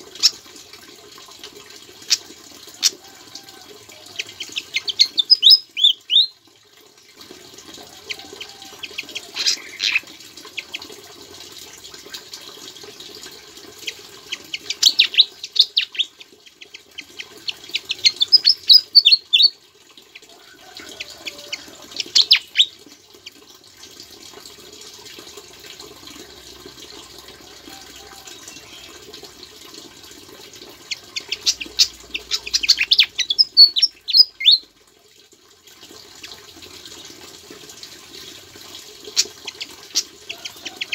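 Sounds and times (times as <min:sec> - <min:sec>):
steady water-like hiss: 0:00.0 - 0:40.9
songbird chirping and trilling: 0:04.1 - 0:06.4, 0:08.0 - 0:10.8, 0:13.8 - 0:19.5, 0:20.8 - 0:22.8, 0:27.7 - 0:29.1, 0:30.9 - 0:34.6.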